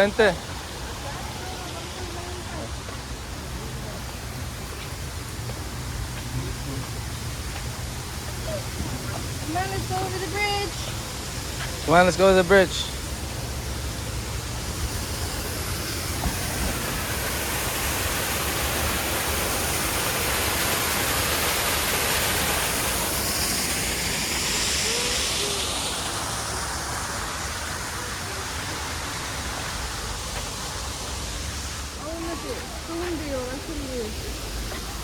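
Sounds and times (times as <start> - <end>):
falling water rushing: 0.0 - 35.0.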